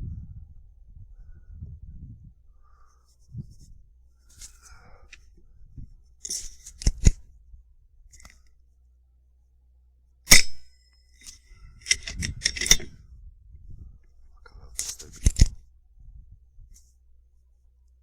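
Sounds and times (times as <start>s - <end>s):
low wind rumble: 0.0s - 8.2s, 11.4s - 17.2s
light clicks and rustles: 8.1s - 8.6s, 14.4s - 15.6s
mechanical clicks and rattles: 11.8s - 12.9s.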